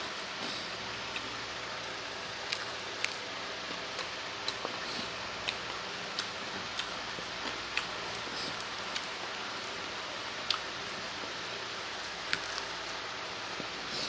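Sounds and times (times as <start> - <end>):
steady hiss: 0.0 - 14.0
chewing: 0.4 - 9.7.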